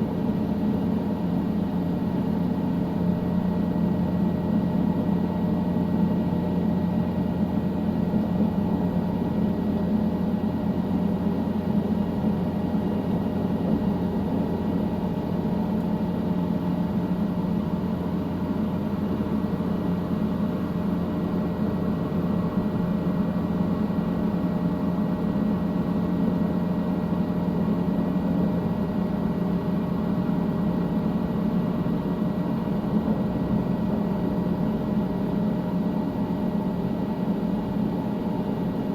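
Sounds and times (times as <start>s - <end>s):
helicopter engine and rotor drone: 0.0s - 38.9s.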